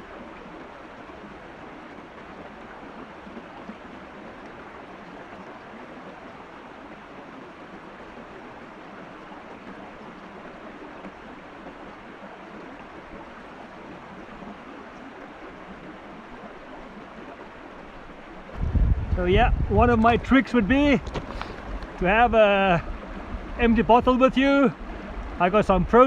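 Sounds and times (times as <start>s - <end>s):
stream running water: 0.0s - 26.0s.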